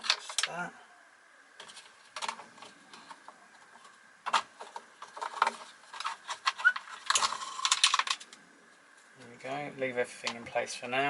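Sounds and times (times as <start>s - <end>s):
plastic parts clicking and knocking: 0.0s - 0.5s, 1.6s - 8.4s.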